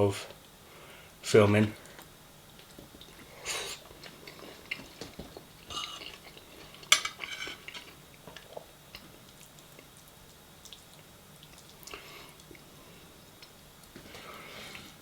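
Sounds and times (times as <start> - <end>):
cutlery clinking on dishes: 5.7 - 6.2, 6.8 - 7.9.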